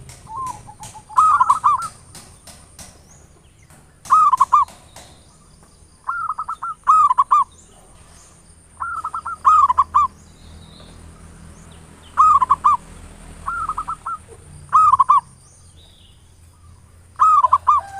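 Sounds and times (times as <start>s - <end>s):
dove cooing: 0.0s - 2.3s, 4.0s - 4.8s, 6.0s - 8.1s, 8.8s - 10.1s, 12.2s - 15.3s, 17.2s - 17.9s.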